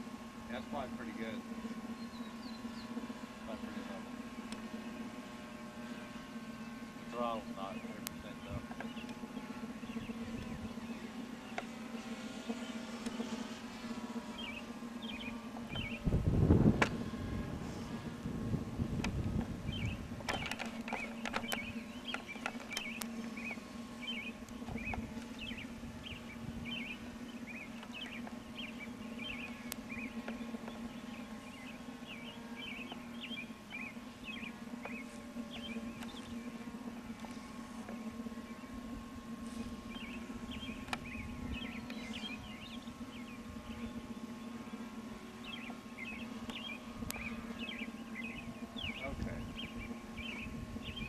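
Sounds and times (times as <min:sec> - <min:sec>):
birds chirping: 0:00.0 - 0:51.0
low hum: 0:00.0 - 0:51.0
wind rumble on microphone: 0:15.7 - 0:20.5, 0:24.7 - 0:26.8, 0:40.6 - 0:41.8, 0:48.8 - 0:51.0.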